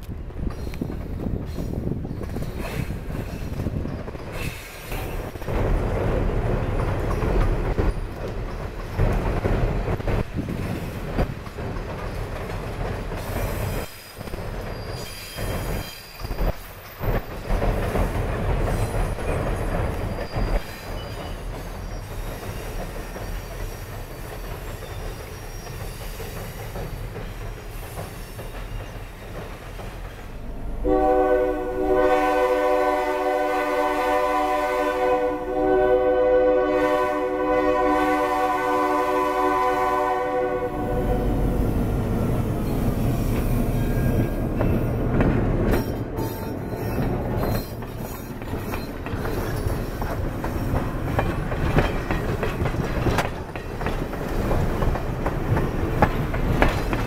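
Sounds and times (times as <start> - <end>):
train wheels rumbling on bridge: 0.0 - 57.0
wheel squeal: 13.9 - 17.4, 20.0 - 23.8, 24.6 - 26.8, 45.7 - 50.1
locomotive horn: 30.8 - 41.7.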